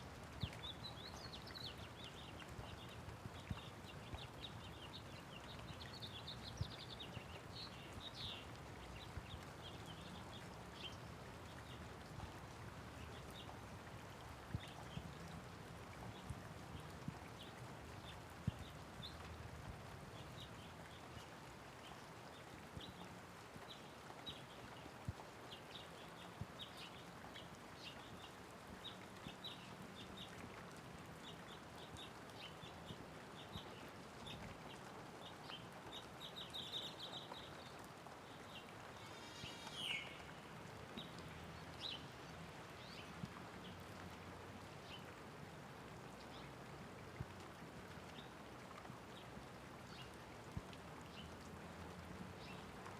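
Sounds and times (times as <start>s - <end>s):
light rain falling: 0.0s - 52.9s
small birds chirping: 0.3s - 15.4s, 20.1s - 45.2s.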